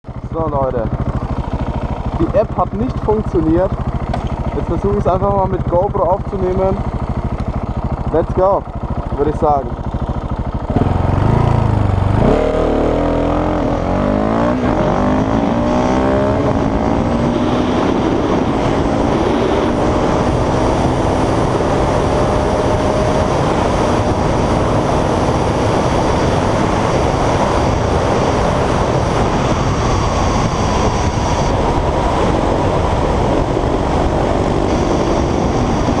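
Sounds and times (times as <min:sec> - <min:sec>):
motorcycle engine accelerating: 0:00.1 - 0:36.0
wind rush: 0:14.4 - 0:36.0.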